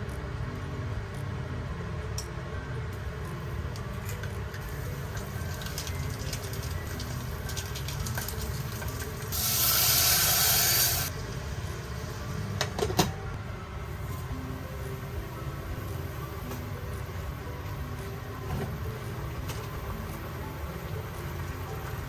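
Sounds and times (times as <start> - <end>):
steady low background noise: 0.0 - 22.0
loud burst of hissing: 9.3 - 11.1.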